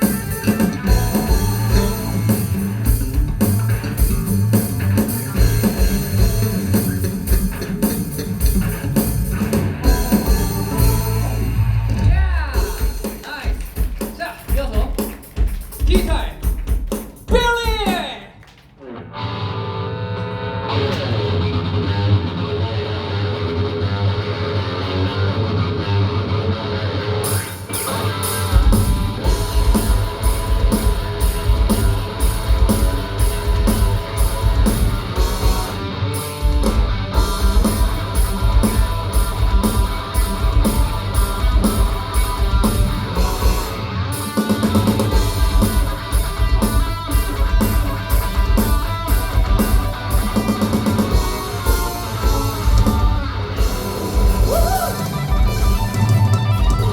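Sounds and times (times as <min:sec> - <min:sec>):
cymbals: 0:00.0 - 0:11.9
electric guitar lead: 0:00.0 - 0:13.0, 0:18.8 - 0:56.9
live rock band playing: 0:00.0 - 0:18.2, 0:18.8 - 0:56.9
steady drum beat: 0:00.0 - 0:18.6, 0:27.3 - 0:56.9.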